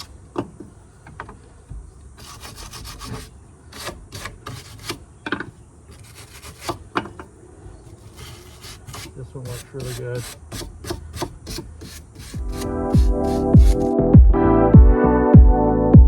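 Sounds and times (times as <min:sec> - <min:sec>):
hand brush scrubbing wood: 0:02.2 - 0:05.0, 0:07.9 - 0:13.9.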